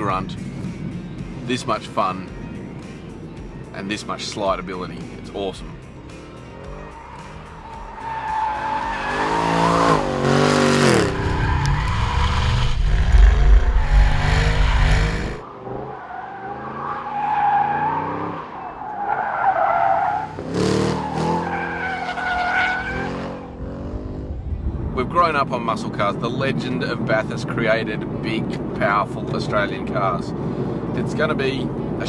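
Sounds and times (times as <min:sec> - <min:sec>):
tyres squealing: 0:06.6 - 0:10.3
car engine revving hard: 0:08.5 - 0:18.4, 0:20.3 - 0:24.4.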